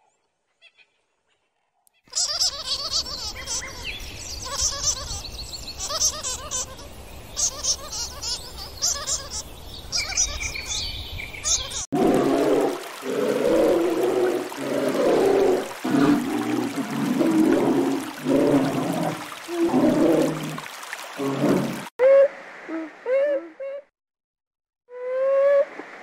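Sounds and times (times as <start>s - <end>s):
bird chirps and trills: 2.0s - 11.8s.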